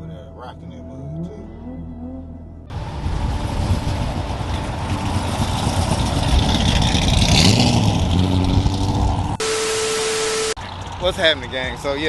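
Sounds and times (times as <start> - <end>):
car engine revving: 2.6 - 12.0.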